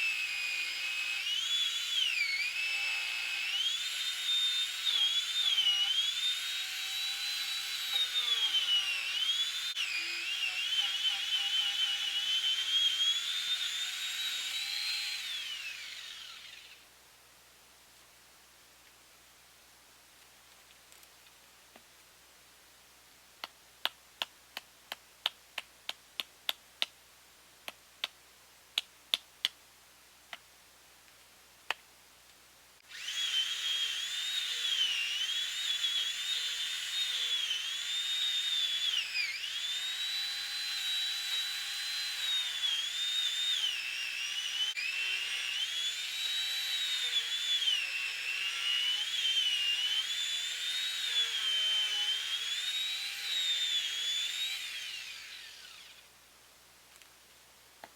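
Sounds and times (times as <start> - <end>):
chainsaw running at high revs: 32.9 - 55.9.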